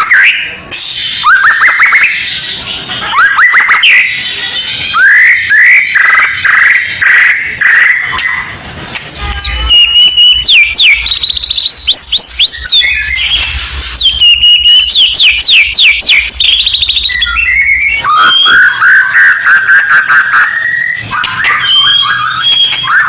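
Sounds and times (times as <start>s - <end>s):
bird whistled song: 0.0s - 8.5s, 9.3s - 23.0s.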